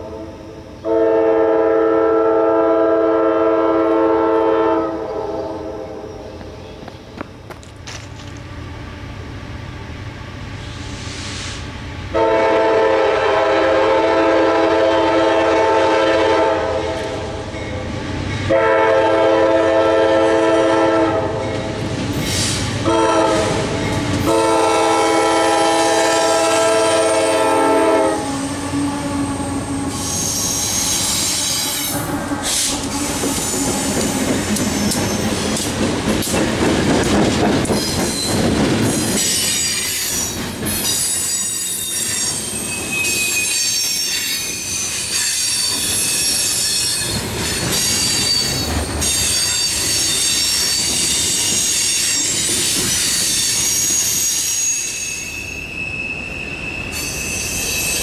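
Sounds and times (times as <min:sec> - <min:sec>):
locomotive air horn: 0:00.0 - 0:06.1, 0:12.1 - 0:17.2, 0:18.5 - 0:21.4, 0:22.8 - 0:33.6
train wheels rumbling and clattering: 0:06.3 - 0:55.7
wheel flanges squealing on rail: 0:12.2 - 0:36.4, 0:37.0 - 0:58.0.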